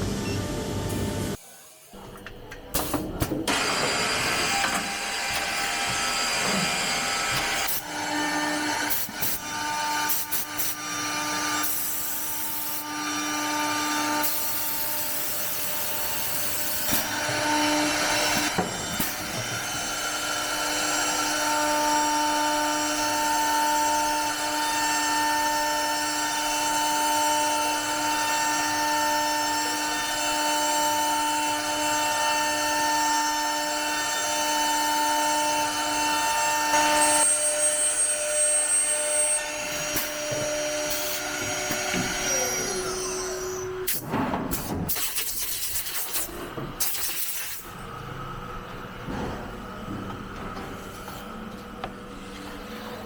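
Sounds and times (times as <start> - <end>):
drilling machine spindle whine: 17.0 - 43.9
drill bits cutting board: 36.7 - 43.7.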